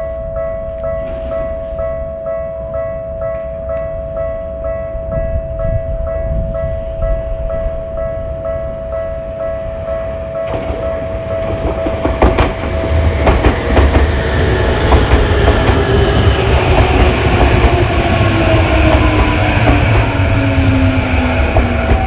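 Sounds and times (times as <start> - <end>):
crossing warning bell ringing: 0.0 - 22.0
train whine falling in pitch: 5.1 - 22.0
train wheels clacking and rumbling: 10.4 - 22.0.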